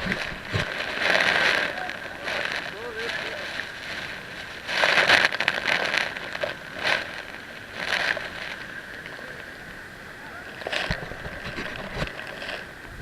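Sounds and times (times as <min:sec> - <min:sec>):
water slapping against kayak: 0:00.0 - 0:08.6.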